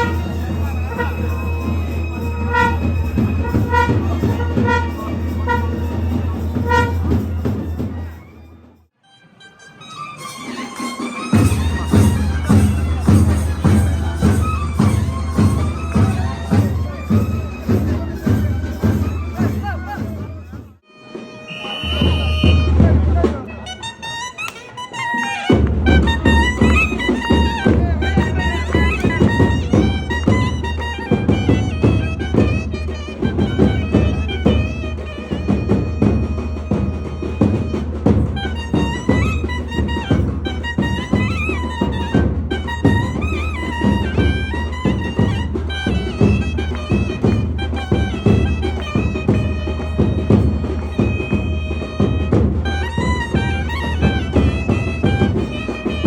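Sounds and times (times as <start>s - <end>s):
horn-like wind instrument notes: 0.0s - 56.0s
reedy double-reed melody: 0.0s - 56.0s
rapid drum strokes: 10.8s - 20.8s.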